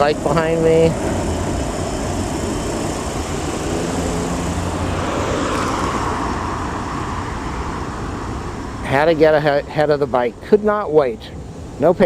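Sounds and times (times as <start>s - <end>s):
passing vehicles rumbling: 0.6s - 10.5s
rushing sound: 3.1s - 8.7s
faint engine tone: 3.2s - 9.0s.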